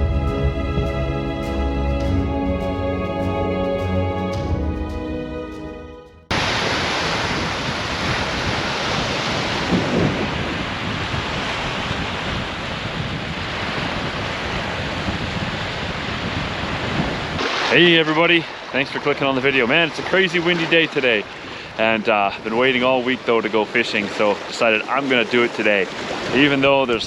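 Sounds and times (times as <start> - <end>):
strong wind on microphone: 0.0 - 2.3, 6.3 - 17.7
instrumental music: 0.0 - 6.3.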